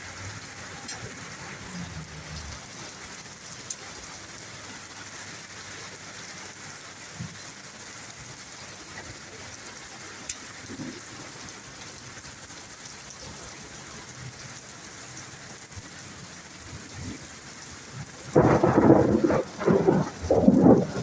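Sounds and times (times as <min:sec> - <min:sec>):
steady rain falling: 0:00.0 - 0:21.0
loud thunderclap: 0:18.2 - 0:21.0.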